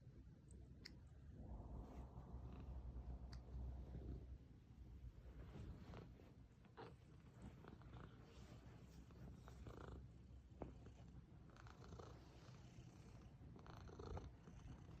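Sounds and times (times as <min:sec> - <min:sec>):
cat purring: 0:00.8 - 0:15.0
soft rustles: 0:03.4 - 0:11.1.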